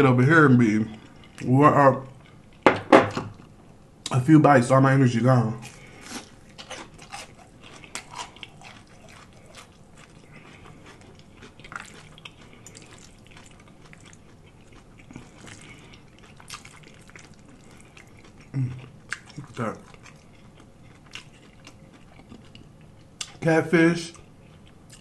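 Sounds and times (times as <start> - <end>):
crisp crunching while chewing: 5.6 - 23.4.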